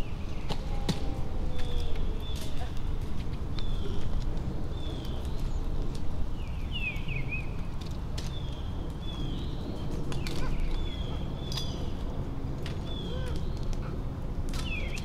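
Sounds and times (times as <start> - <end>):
birds whistling and twittering: 6.4 - 12.1, 12.8 - 13.8, 14.6 - 15.0.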